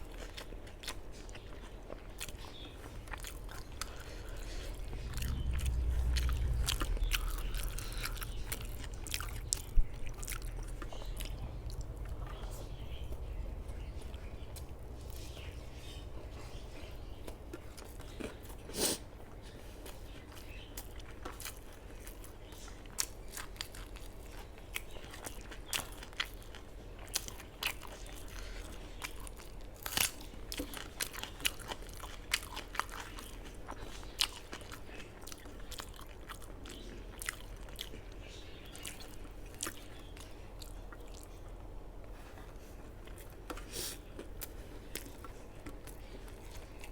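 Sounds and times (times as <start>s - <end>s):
person chewing food: 0.0s - 46.9s.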